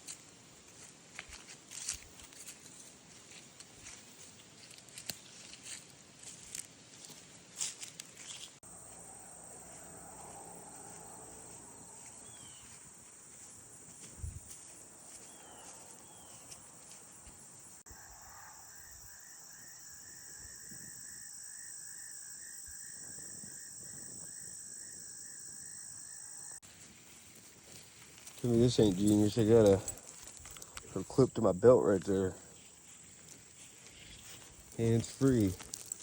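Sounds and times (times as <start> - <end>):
insects chirring high: 8.3 - 36.0
low pulsing insect trill: 8.3 - 36.0.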